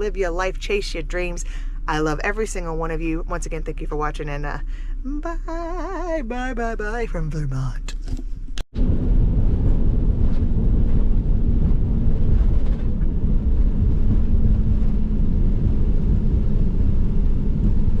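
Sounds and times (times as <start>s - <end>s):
faint steady hum: 0.0s - 12.1s
vehicle engine and road noise: 0.0s - 18.0s.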